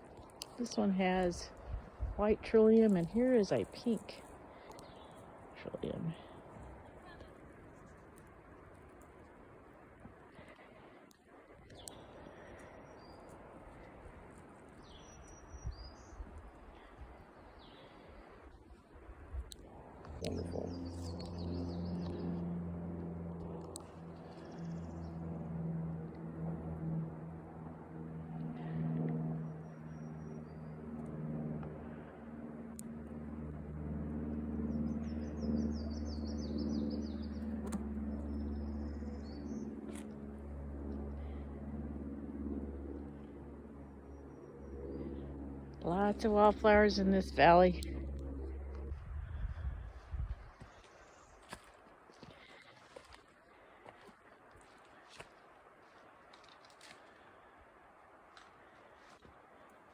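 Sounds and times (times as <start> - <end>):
low steady drone: 0.0 - 59.9
songbirds chirping: 0.2 - 7.2, 10.3 - 14.0, 14.6 - 18.7, 19.5 - 25.7, 34.4 - 41.6, 42.8 - 57.6.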